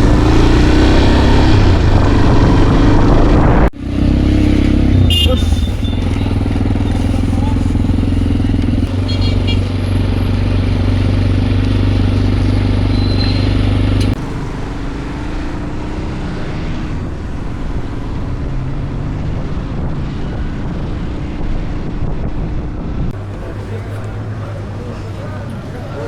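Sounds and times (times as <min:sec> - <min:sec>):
motorcycle engine running: 0:00.0 - 0:15.3
road noise: 0:00.0 - 0:26.0.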